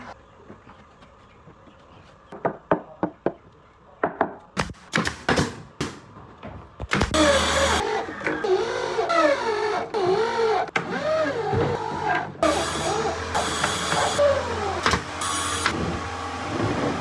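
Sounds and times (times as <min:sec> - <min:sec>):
knocks on wooden panels: 0:02.4 - 0:03.4, 0:04.0 - 0:04.4.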